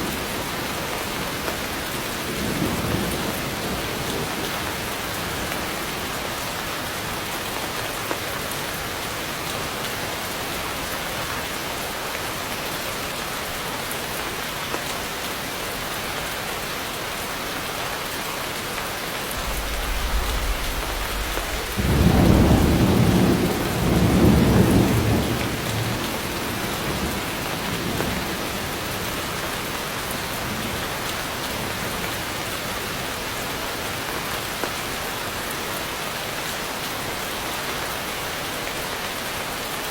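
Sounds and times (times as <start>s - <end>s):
heavy rain falling: 0.0s - 39.9s
thunder rumbling: 19.4s - 27.0s.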